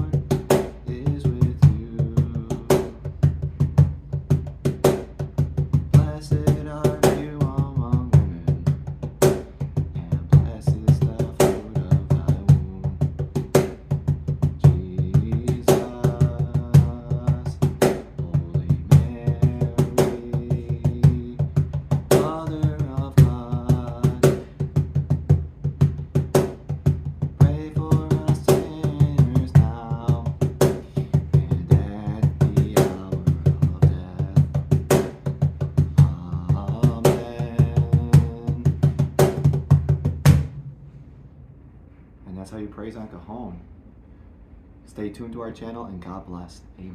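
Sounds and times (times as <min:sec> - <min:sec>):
person singing: 0:00.0 - 0:00.3, 0:14.6 - 0:24.6, 0:27.4 - 0:34.6, 0:35.9 - 0:38.8
cajon slaps: 0:00.0 - 0:40.6
bass: 0:00.0 - 0:46.9.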